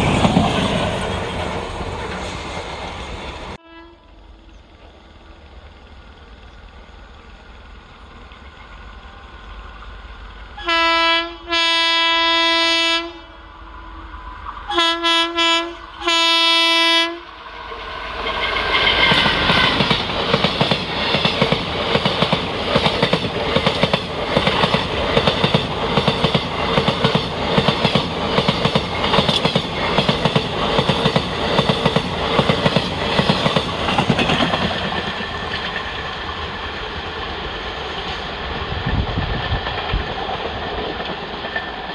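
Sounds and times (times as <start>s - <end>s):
train wheels clattering over rails: 0.0s - 3.6s, 17.8s - 41.9s
train horn blasts: 3.6s - 4.2s, 10.6s - 17.4s.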